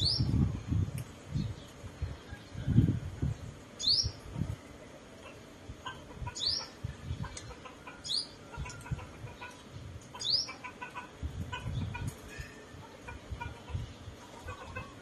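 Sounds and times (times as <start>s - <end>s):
songbird chirping: 5.2s - 15.0s.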